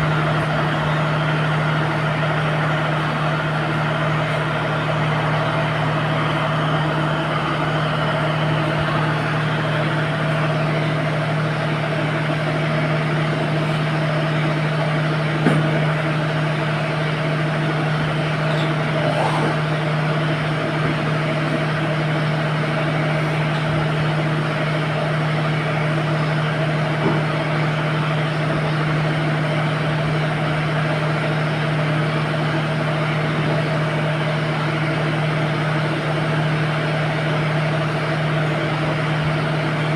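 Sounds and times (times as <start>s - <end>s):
engine droning with low hum: 0.0s - 39.9s.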